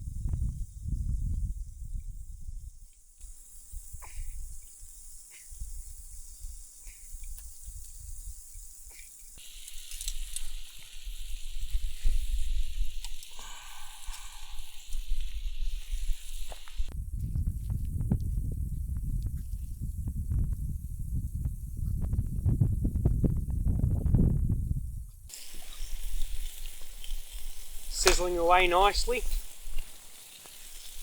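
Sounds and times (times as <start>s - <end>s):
wind rumble on microphone: 0.0s - 3.0s, 3.7s - 8.8s, 11.0s - 28.1s
fire pops and crackles: 7.3s - 18.5s, 25.3s - 31.0s
food sizzling on a grill plate: 9.4s - 16.9s, 25.3s - 31.0s.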